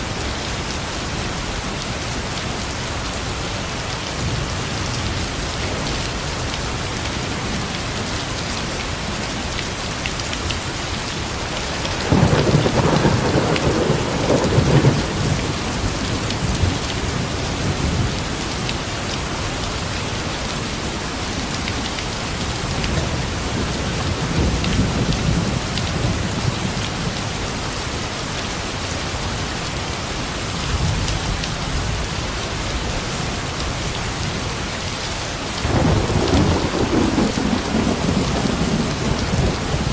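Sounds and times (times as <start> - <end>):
steady rain falling: 0.0 - 39.9
thunder rumbling: 11.7 - 18.2, 35.6 - 39.9.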